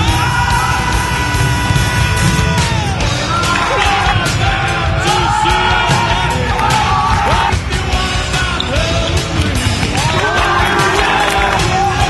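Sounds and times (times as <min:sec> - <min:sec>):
man singing long notes: 0:00.0 - 0:09.4
hard rock drums and guitars: 0:00.0 - 0:12.0.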